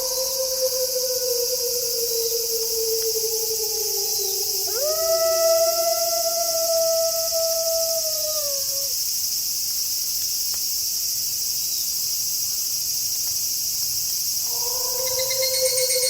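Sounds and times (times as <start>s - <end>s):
wolf howling: 0.0s - 8.9s, 14.5s - 16.0s
crickets chirping: 0.0s - 16.0s.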